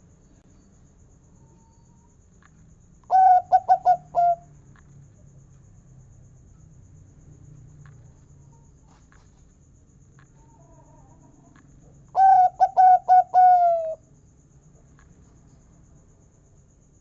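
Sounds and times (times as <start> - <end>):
dove singing: 3.1 - 4.4, 12.1 - 14.0.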